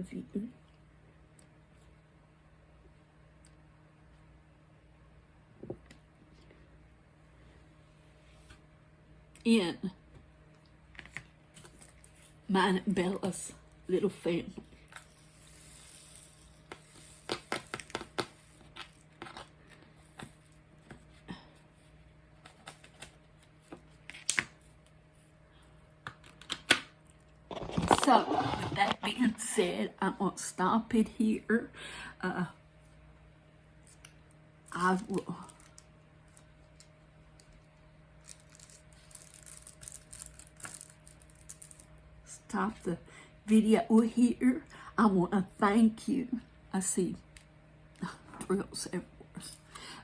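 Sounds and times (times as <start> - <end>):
faint room hum: 0.0 - 50.0
small objects clicking and tapping: 16.7 - 19.4.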